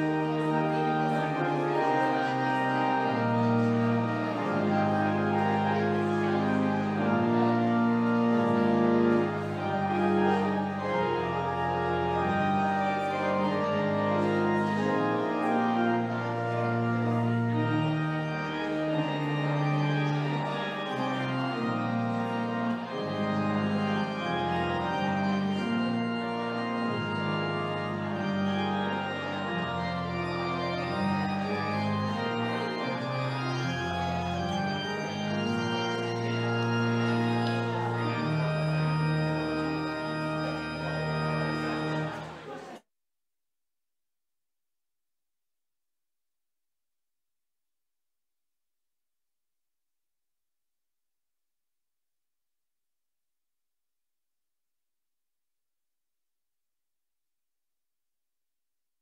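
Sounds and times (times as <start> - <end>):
church organ chords: 0.0 - 42.8.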